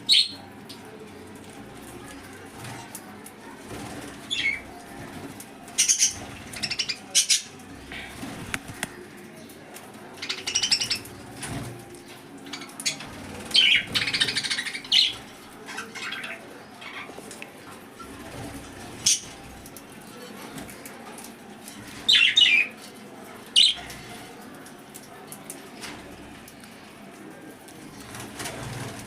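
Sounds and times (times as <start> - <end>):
lovebirds calling high-pitched: 0.0 - 0.4, 5.7 - 7.6, 10.2 - 11.1, 12.5 - 17.1, 22.0 - 22.7.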